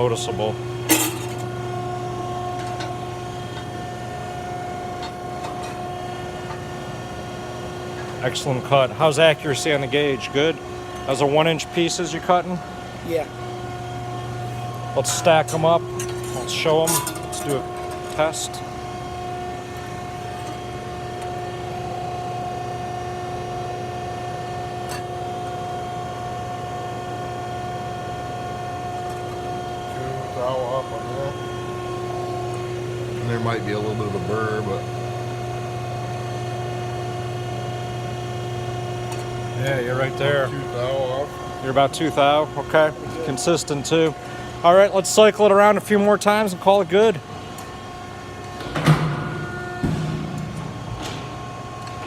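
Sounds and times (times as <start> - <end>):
power shear machine hum: 0.0 - 52.0.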